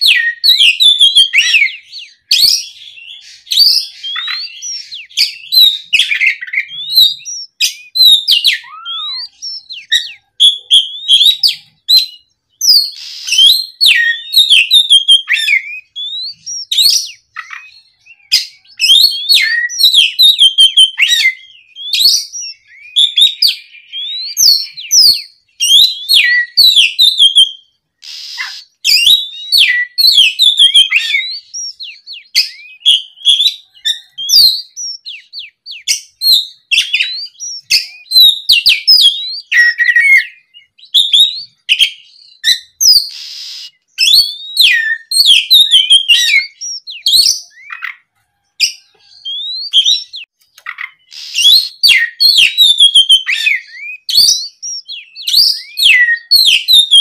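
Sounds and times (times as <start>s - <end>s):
songbird singing whistles and chirps: 0.0s - 57.0s
harsh rasping bird notes: 12.6s - 14.4s, 28.0s - 29.8s, 41.4s - 44.0s, 44.6s - 56.1s.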